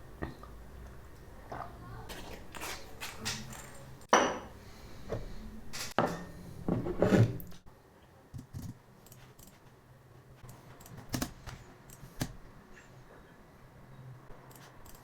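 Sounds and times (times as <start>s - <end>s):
dishes and utensils clinking: 3.0s - 4.6s, 5.7s - 7.4s
dishes knocking: 4.1s - 4.5s.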